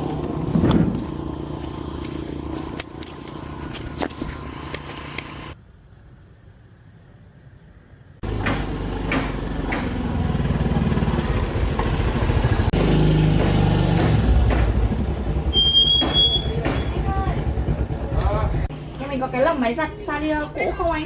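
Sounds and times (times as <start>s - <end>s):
engine running: 0.0s - 5.6s, 8.2s - 20.5s.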